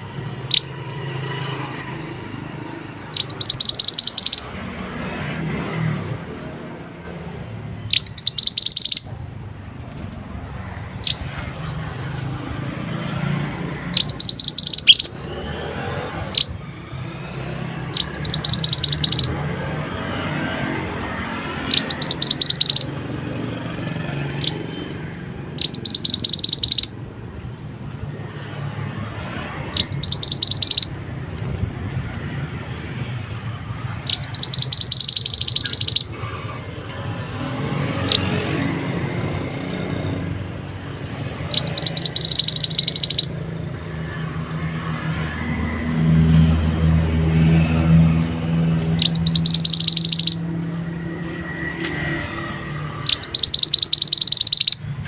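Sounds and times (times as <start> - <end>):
songbird trilling: 0.4 - 0.8, 1.7 - 4.5, 7.8 - 9.2, 11.0 - 11.4, 13.0 - 15.4, 16.3 - 16.6, 17.8 - 19.4, 21.4 - 23.0, 24.3 - 24.8, 25.5 - 27.0, 28.0 - 31.0, 33.9 - 36.2, 38.0 - 38.3, 41.3 - 43.4, 48.9 - 51.4, 53.0 - 55.0
short bird chirps: 7.9 - 9.2, 13.9 - 15.1, 34.1 - 36.1, 41.5 - 43.3, 49.0 - 50.4.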